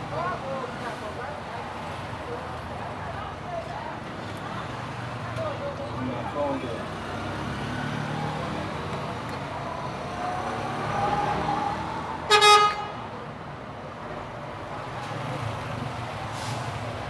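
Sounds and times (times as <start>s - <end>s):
road traffic: 0.0s - 17.0s
vehicle horn honk: 12.3s - 13.0s.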